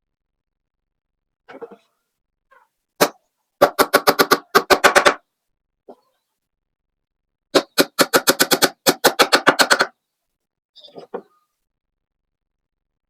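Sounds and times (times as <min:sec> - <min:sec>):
rapid knocks on wood: 0:03.0 - 0:05.2.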